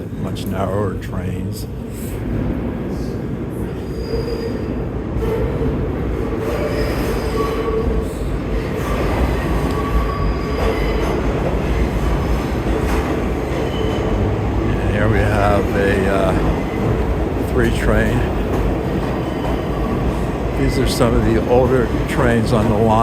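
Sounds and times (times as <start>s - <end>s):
subway train rumbling: 0.0s - 23.0s
wheels squealing: 6.4s - 11.3s.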